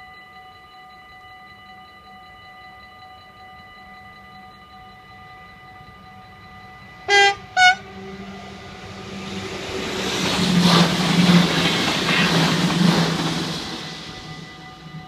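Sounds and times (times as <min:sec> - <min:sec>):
crossing warning bells ringing: 0:00.0 - 0:15.0
electric train passing: 0:02.8 - 0:15.0
train horn blasts: 0:07.0 - 0:08.4
train wheel clacks: 0:09.2 - 0:14.8.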